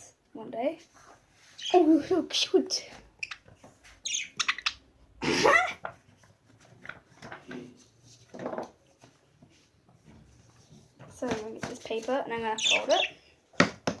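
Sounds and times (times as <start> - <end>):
birds chirping: 1.6 - 5.7, 12.0 - 13.4.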